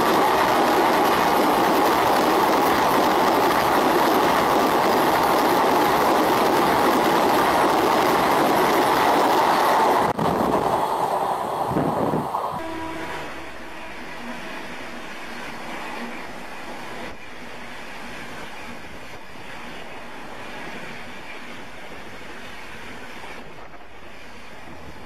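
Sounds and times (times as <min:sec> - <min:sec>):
train passing at speed: 0:00.0 - 0:25.0
wheels rushing on rails: 0:00.0 - 0:25.0.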